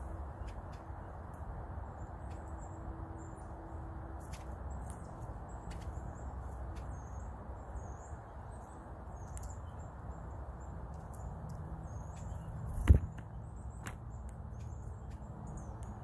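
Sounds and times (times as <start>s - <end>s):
bird chirps: 4.7s - 16.0s.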